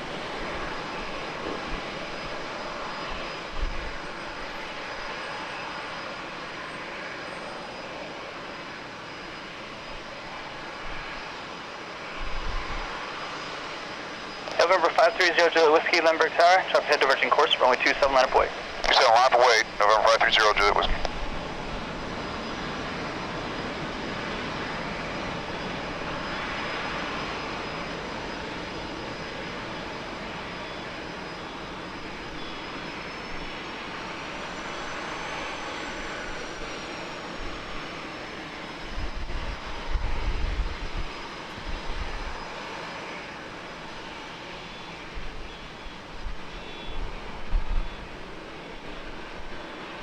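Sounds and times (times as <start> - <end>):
jet engines rumbling: 0.0 - 50.0
high engine whine: 12.0 - 50.0
wind buffeting microphone: 38.9 - 42.3, 46.2 - 48.3.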